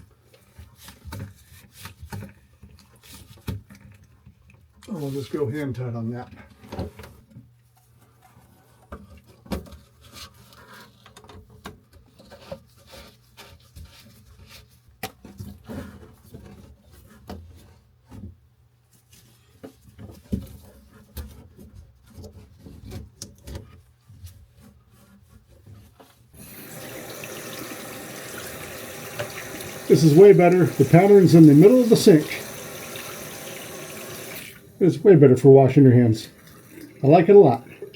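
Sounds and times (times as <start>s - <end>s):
plumbing fittings knocking and clicking: 26.4s - 34.6s
water running into sink: 26.4s - 37.9s.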